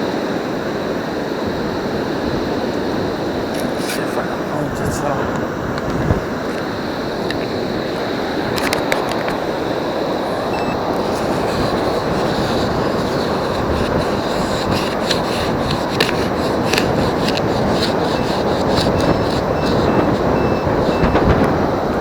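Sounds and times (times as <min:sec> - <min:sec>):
surf rushing: 0:00.0 - 0:22.0
shells and gravel clicking: 0:08.5 - 0:09.4.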